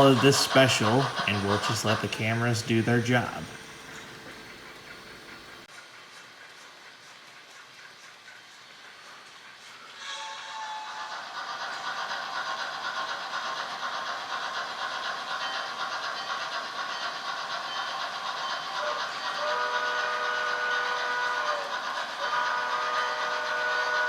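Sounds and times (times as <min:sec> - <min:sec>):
steam hiss: 0:00.0 - 0:24.0
chime-like steam whistle: 0:09.8 - 0:11.8, 0:15.3 - 0:24.0.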